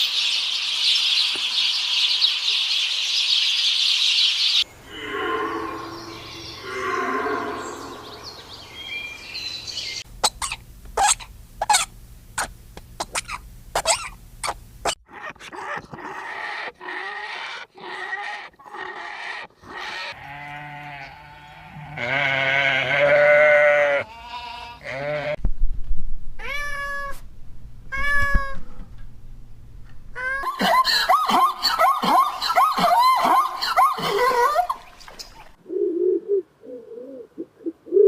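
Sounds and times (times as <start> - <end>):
cat meowing: 26.4 - 27.2, 27.9 - 28.6.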